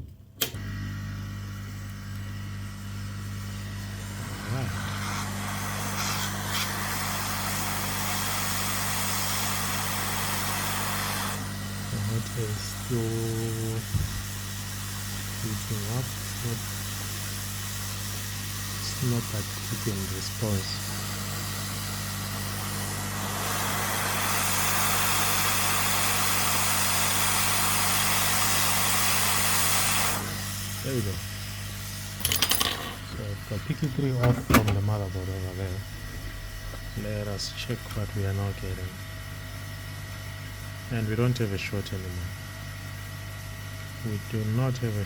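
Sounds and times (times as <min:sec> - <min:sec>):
hot air blower hissing: 0:00.4 - 0:45.0
low hum: 0:32.3 - 0:40.1.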